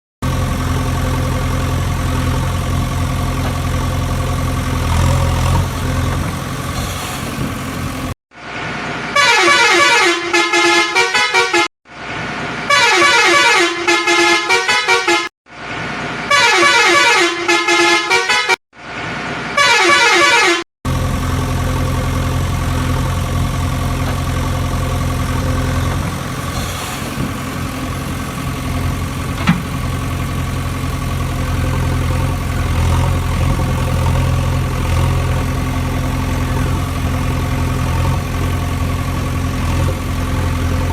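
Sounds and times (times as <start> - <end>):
heavy vehicle engine drone: 0.2 - 10.5, 20.9 - 40.9
quick horn honks: 9.2 - 11.7, 12.7 - 15.3, 16.3 - 18.6, 19.6 - 20.6.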